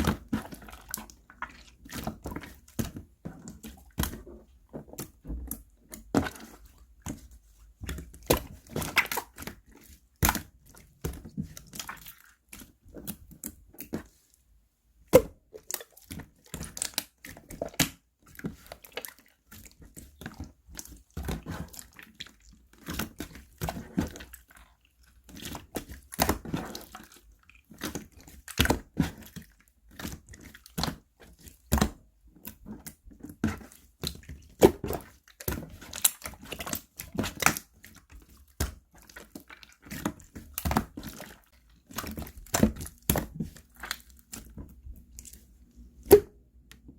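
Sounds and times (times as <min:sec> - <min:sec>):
slime squished by hand: 0:07.9 - 0:14.1.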